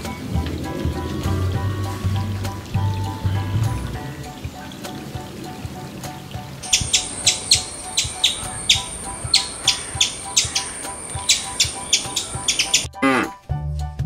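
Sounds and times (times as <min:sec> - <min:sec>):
rapid high chirping calls: 0:06.6 - 0:13.2.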